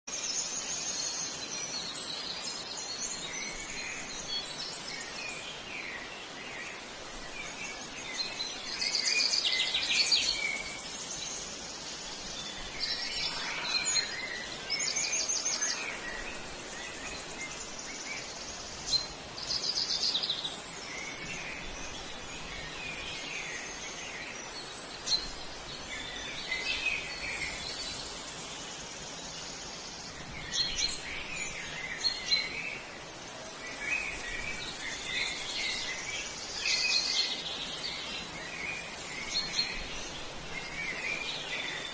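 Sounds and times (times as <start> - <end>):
birds chirping and singing: 0.1 - 32.8
outdoor background hiss: 0.1 - 41.9.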